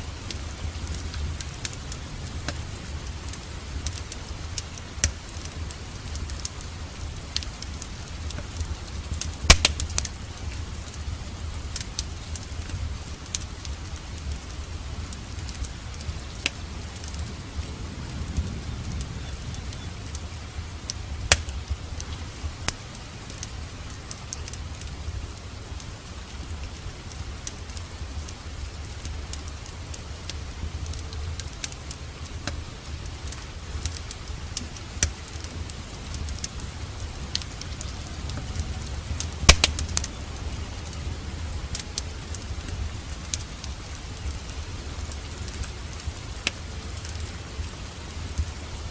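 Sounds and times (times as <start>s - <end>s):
steady rain: 0.0s - 48.9s
wood fire crackling and popping: 0.0s - 48.9s.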